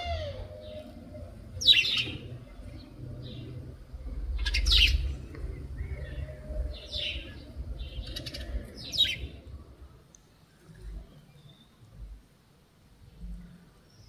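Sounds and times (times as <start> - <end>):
low rumble: 0.0 - 10.0
birds chirping: 0.0 - 11.9.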